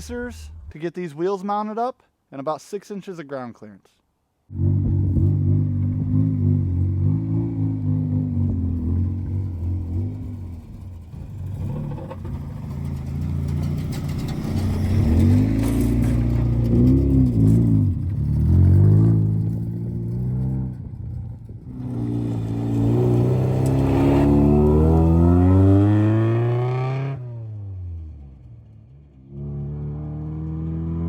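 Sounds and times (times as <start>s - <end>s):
car engine revving: 4.5s - 28.5s.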